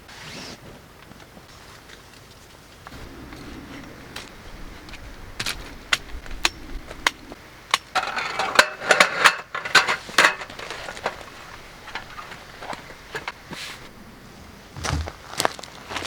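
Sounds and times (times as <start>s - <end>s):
hard objects clicking and knocking: 5.4s - 13.4s.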